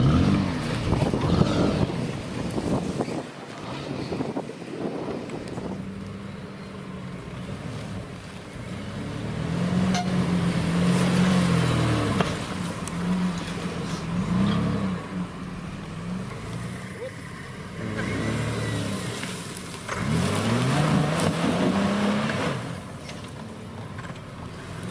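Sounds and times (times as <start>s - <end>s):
car engine revving: 0.0s - 3.0s, 5.6s - 23.4s.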